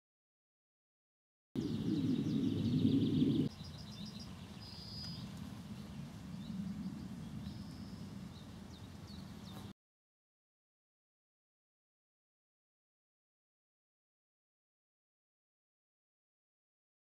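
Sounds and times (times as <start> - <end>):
low background rumble: 1.6 - 9.5
small birds chirping: 1.6 - 9.8.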